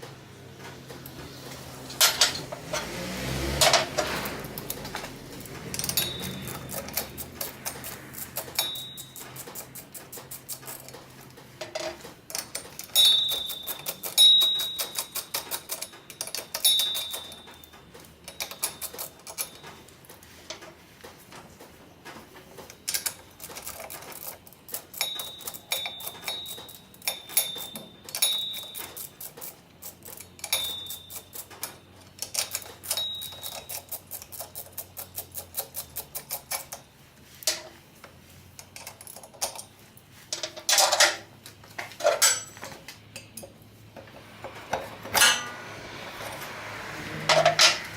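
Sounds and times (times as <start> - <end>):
metal tools clinking: 1.9 - 20.8, 22.6 - 37.8, 38.6 - 44.2, 45.0 - 47.9
ratchet clicking: 2.0 - 20.2, 22.9 - 36.8.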